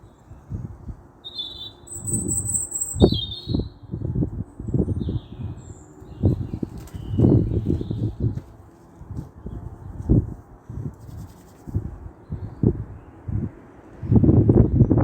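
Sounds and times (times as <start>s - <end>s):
small birds chirping: 0.0s - 8.8s
low rumbling wind gusts: 0.0s - 15.0s.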